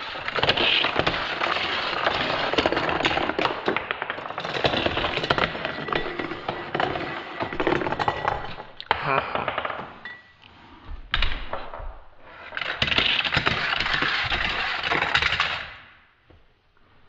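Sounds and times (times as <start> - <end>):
plastic toy cars clattering on track: 0.0 - 8.8, 12.4 - 16.0.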